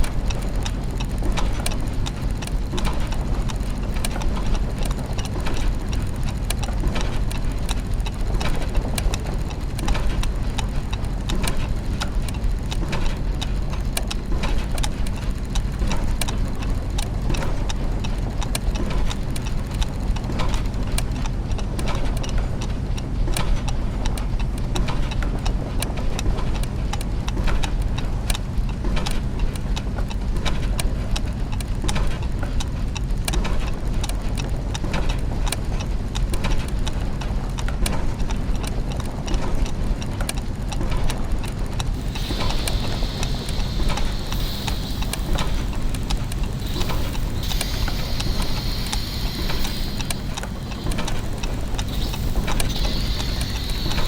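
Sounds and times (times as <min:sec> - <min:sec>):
clockwork ticks and clicks: 0:00.0 - 0:54.0
low machine hum: 0:40.9 - 0:54.0
high whirring tone: 0:41.8 - 0:54.0.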